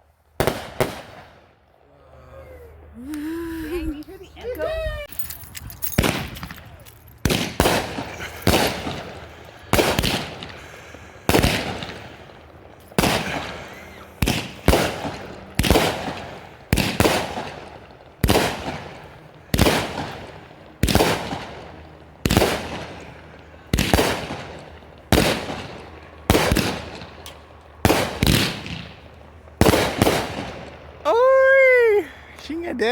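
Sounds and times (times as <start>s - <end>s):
fireworks cake bangs echoing: 0.4s - 1.5s, 6.0s - 31.0s.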